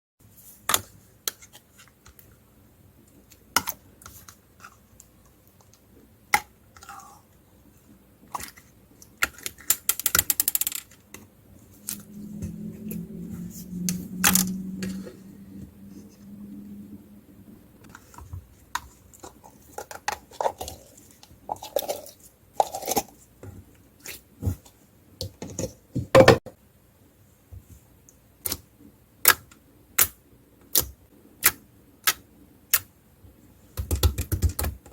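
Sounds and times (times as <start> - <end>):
low hum: 11.4 - 17.9.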